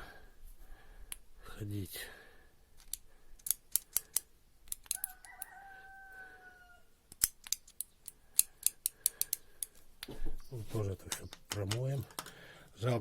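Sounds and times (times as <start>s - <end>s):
sharp metal clicks: 2.8s - 5.5s, 7.1s - 10.1s, 11.0s - 12.4s
rooster crowing: 4.9s - 7.0s.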